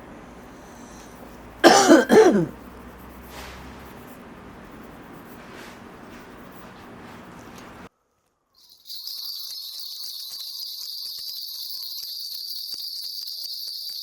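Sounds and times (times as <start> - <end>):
person coughing: 1.6 - 2.6.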